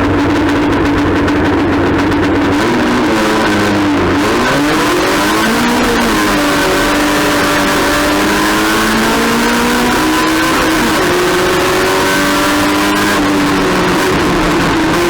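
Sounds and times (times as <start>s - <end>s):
race car engine at high revs: 0.0s - 15.0s
wind and road noise: 0.0s - 15.0s.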